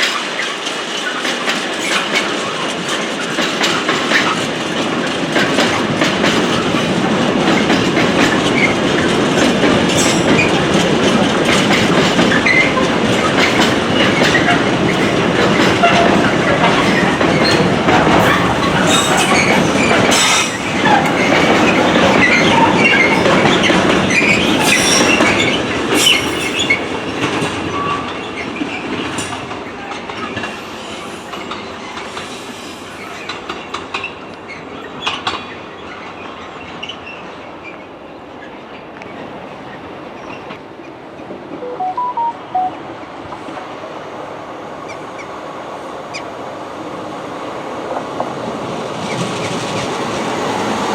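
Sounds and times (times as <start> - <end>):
train wheels rattling on rails: 0.0 - 41.0, 44.9 - 50.9
metallic squealing: 26.0 - 26.9.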